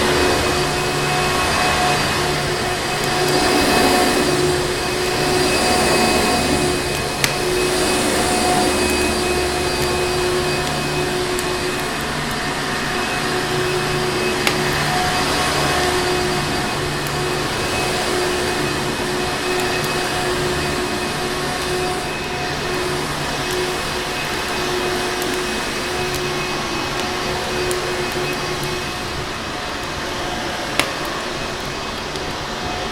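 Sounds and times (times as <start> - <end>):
fireplace crackling: 0.0 - 18.9
vacuum cleaner running: 0.0 - 32.9.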